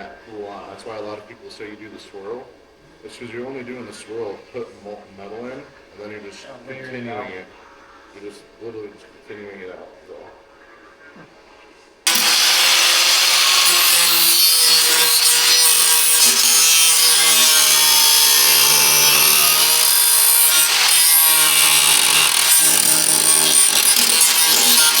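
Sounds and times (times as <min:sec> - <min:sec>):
power tool cutting sheet metal: 0:12.1 - 0:25.0.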